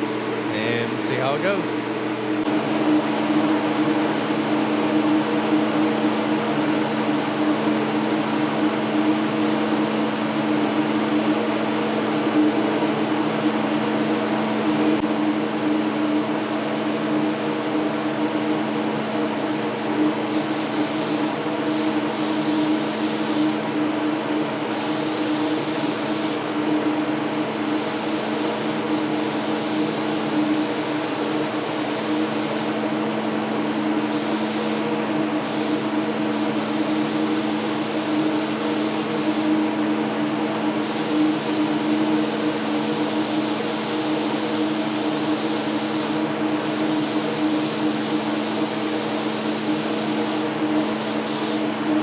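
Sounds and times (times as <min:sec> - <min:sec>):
exhaust fan humming: 0:00.0 - 0:08.2, 0:08.9 - 0:52.0
paint spray gun hissing: 0:20.3 - 0:23.6, 0:24.7 - 0:26.4, 0:27.7 - 0:32.8, 0:34.1 - 0:39.6, 0:40.8 - 0:51.7.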